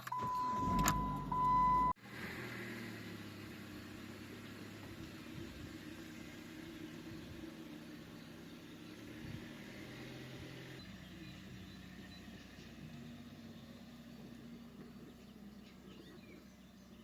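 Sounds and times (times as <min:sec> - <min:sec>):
car electronic warning beep: 0:00.0 - 0:02.0
car engine drone: 0:00.0 - 0:17.0.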